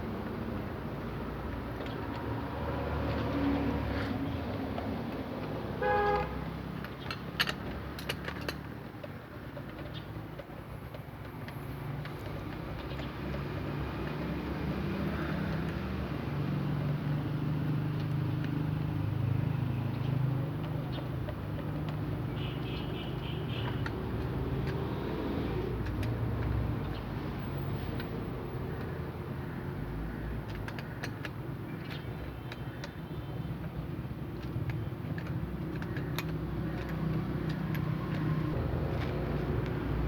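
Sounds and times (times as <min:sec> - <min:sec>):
vehicle horn toot: 0:05.8 - 0:06.4.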